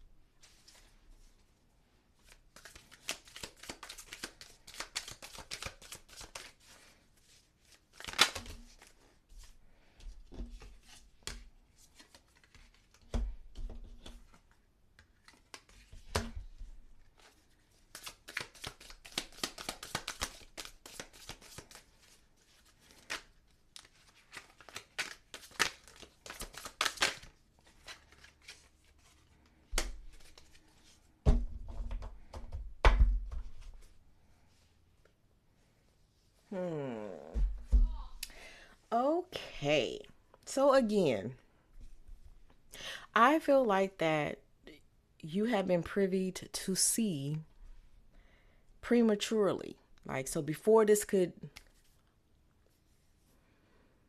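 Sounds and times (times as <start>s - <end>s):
cards being riffle shuffled: 2.2s - 9.5s, 10.5s - 31.0s.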